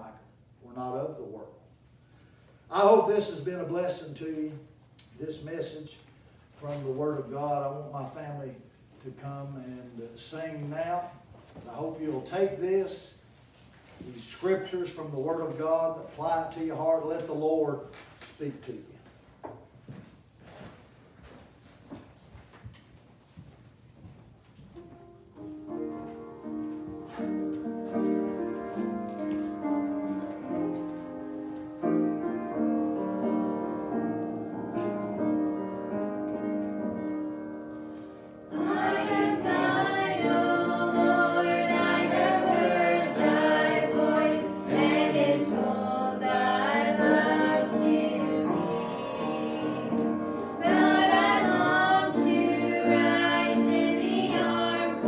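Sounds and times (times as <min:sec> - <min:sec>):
gospel instrumental accompaniment: 0:25.3 - 0:55.0
group of voices singing: 0:38.5 - 0:55.0.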